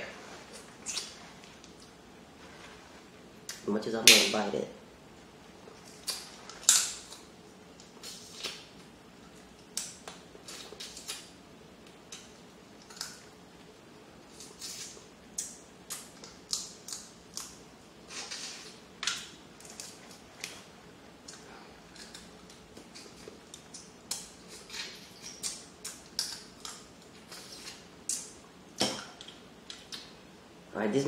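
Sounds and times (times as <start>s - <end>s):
wet chewing and sucking sounds: 0.5s - 1.9s.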